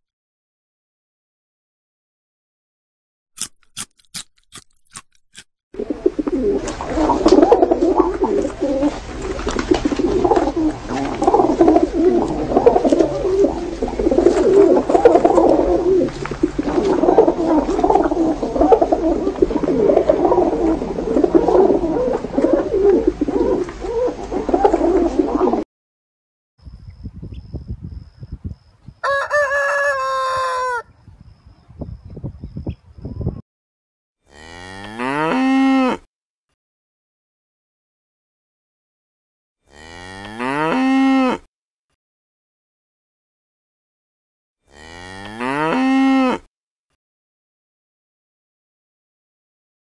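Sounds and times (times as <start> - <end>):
pigeons cooing: 5.8 - 25.6.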